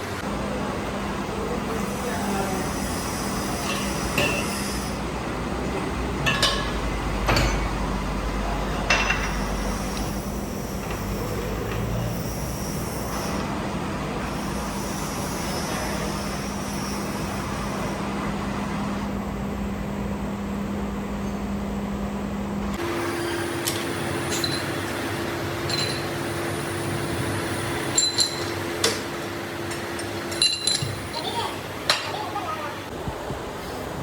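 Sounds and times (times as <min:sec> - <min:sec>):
workshop machinery humming: 0:00.0 - 0:34.0
sharp metallic clanks: 0:06.2 - 0:07.8, 0:27.9 - 0:29.1, 0:29.7 - 0:31.3.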